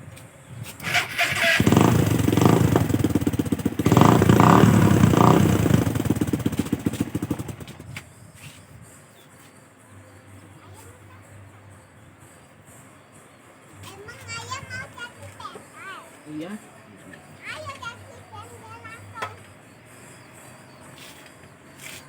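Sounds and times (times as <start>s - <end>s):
motorcycle engine throttle blips: 0.8s - 8.0s.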